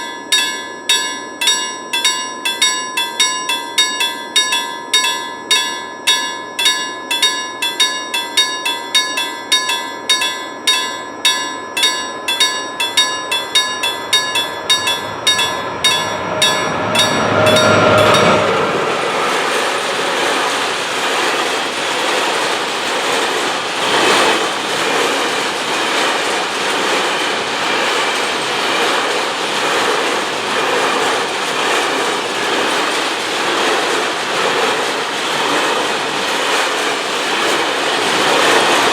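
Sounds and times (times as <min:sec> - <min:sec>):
level crossing warning bell: 0:00.0 - 0:38.9
train wheels clickety-clack: 0:11.8 - 0:38.9
freight train rushing past: 0:12.2 - 0:38.9.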